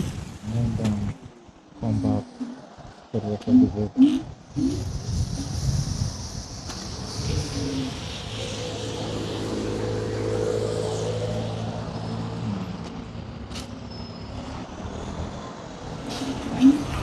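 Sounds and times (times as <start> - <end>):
street traffic: 0.0 - 17.0
vehicle engine humming: 6.4 - 17.0.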